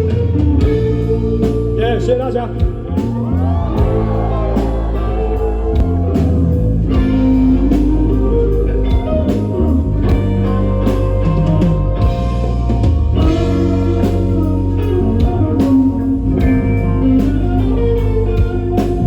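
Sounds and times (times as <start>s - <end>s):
bass guitar: 0.0s - 19.0s
drums: 0.0s - 19.0s
electric guitar: 0.0s - 19.0s.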